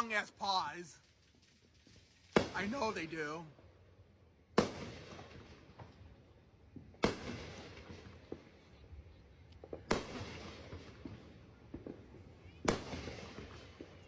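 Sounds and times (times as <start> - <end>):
firework bangs with echo: 1.1 - 3.5, 4.5 - 6.1, 6.7 - 8.6, 9.7 - 14.0
faint firework pops: 6.7 - 8.8, 9.5 - 14.0.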